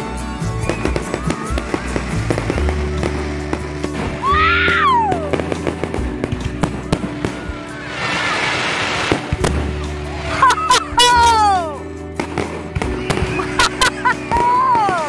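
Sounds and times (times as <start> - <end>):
fireworks bangs and crackles: 0.0 - 15.0
rising and falling whistle: 0.6 - 3.1.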